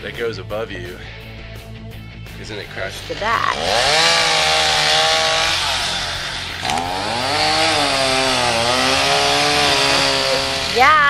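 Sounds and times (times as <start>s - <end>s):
chainsaw cutting wood: 2.8s - 11.0s
sharp wood crack: 3.6s - 10.8s.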